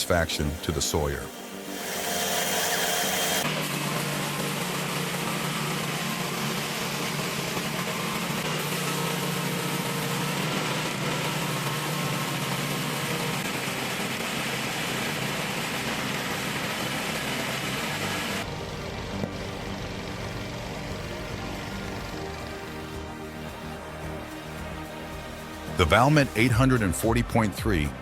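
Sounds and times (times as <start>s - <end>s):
even hiss: 0.0s - 2.8s.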